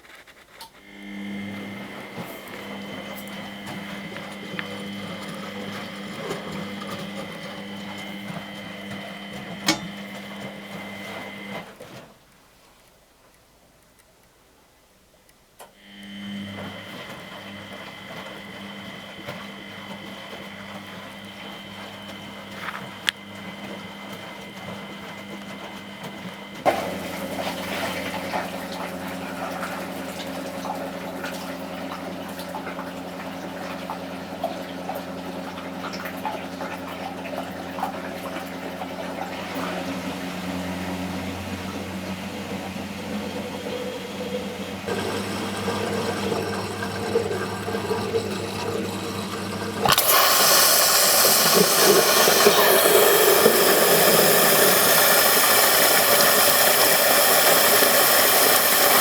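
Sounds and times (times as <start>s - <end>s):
water rushing into drum: 44.8s - 59.0s.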